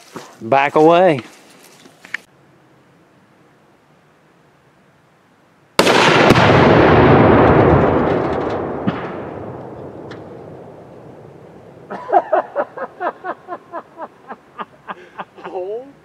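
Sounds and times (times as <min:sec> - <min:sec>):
rifle shot: 0:05.8 - 0:11.6
explosion boom and rumble: 0:05.8 - 0:11.9
sharp cracks: 0:05.8 - 0:12.0.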